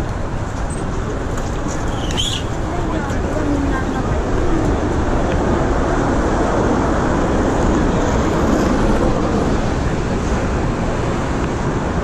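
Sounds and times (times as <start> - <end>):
traffic rumble: 0.0 - 12.0
wind noise: 0.0 - 12.0.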